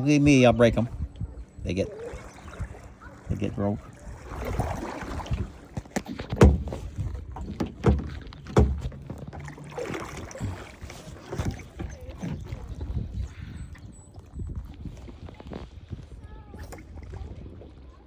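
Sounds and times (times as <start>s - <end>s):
paddle splashing water: 0.1s - 18.0s
sharp knocks: 6.3s - 6.9s, 7.5s - 9.2s.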